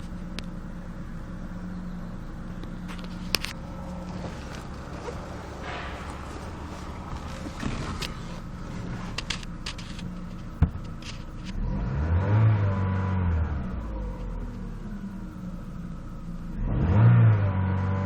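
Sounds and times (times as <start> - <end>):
engine clicks: 0.0 - 11.7
car engine idling and revving: 0.0 - 18.0.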